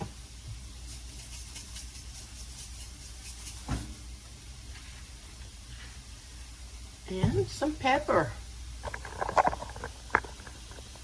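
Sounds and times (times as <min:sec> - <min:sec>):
vegetables frying in grease: 0:00.0 - 0:11.0.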